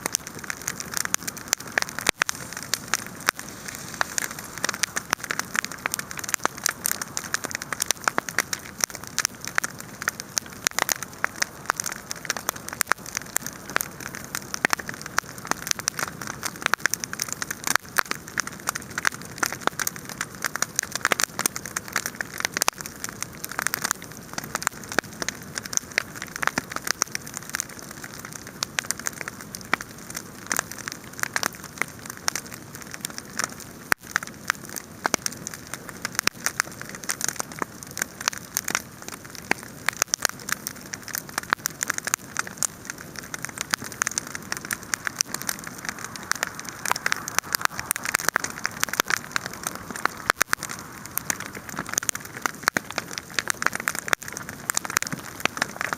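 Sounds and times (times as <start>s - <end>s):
wood fire crackling: 0.0s - 55.9s.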